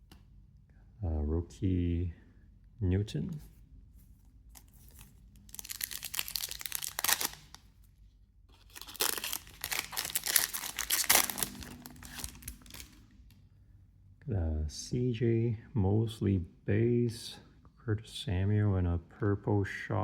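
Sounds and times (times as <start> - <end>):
wrapper tearing and crinkling: 4.5 - 7.8, 8.5 - 13.0.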